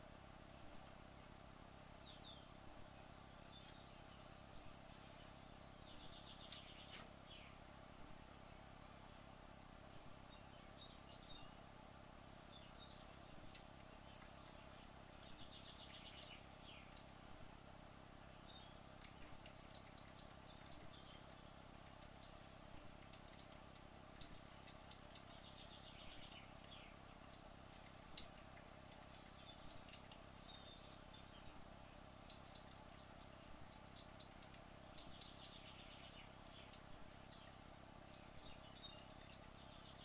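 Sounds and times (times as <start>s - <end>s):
faint steady hum: 0.0s - 40.0s
faint ticks: 3.5s - 3.8s, 6.1s - 7.3s, 13.4s - 17.2s, 19.0s - 30.7s, 32.2s - 40.0s.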